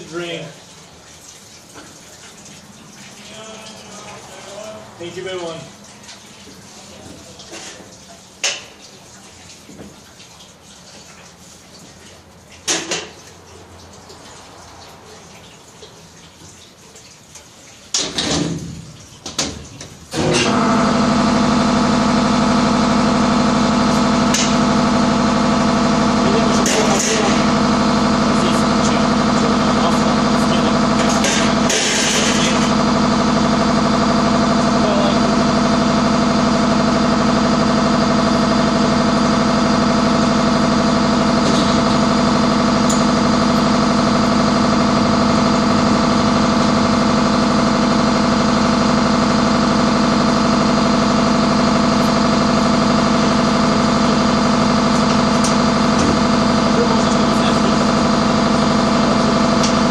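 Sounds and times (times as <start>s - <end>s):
engine idling: 20.4s - 59.9s.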